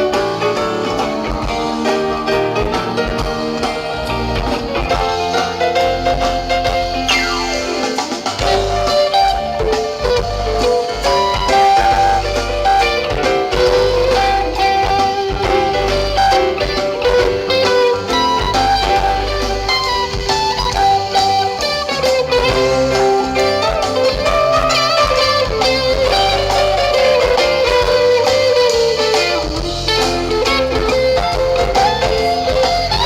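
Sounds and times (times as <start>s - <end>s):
bass and drums: 0.0s - 33.0s
lead guitar lines: 0.0s - 33.0s.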